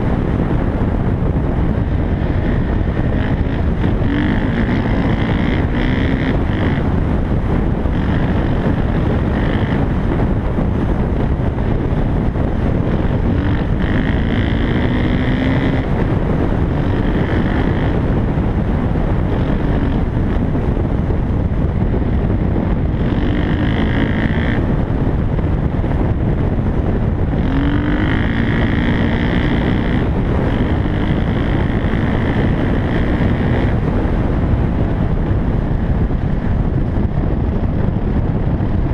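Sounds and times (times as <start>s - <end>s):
dirt bike engine revving: 0.0s - 35.0s
wind noise on microphone: 0.0s - 38.9s.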